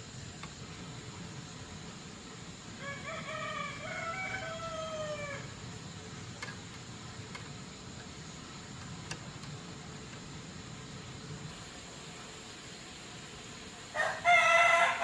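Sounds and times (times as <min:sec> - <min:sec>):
rooster crowing: 0:02.8 - 0:05.5, 0:13.9 - 0:15.0
faint clicks: 0:06.2 - 0:10.3.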